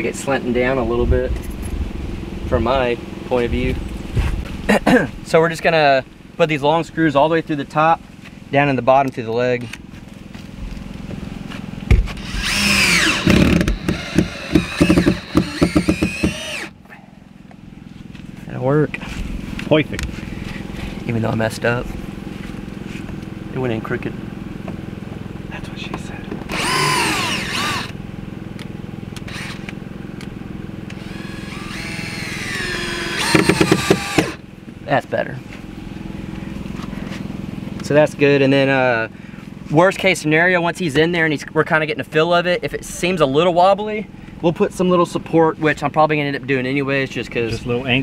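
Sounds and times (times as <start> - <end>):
power drill whining: 12.2 - 16.8, 26.4 - 28.0, 29.2 - 29.8, 30.9 - 34.4.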